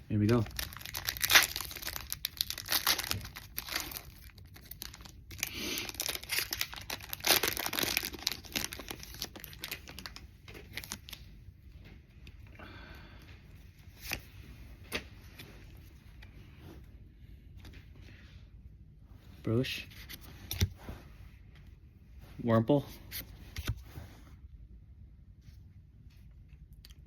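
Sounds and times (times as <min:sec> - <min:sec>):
foil pack tearing and crinkling: 0:00.3 - 0:11.2.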